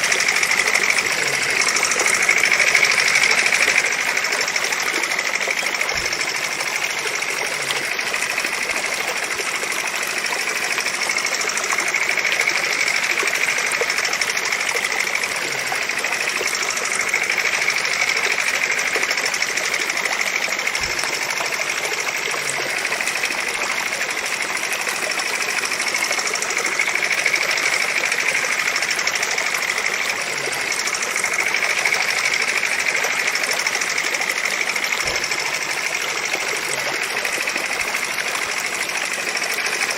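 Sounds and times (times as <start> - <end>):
model engine running: 0.0 - 39.9.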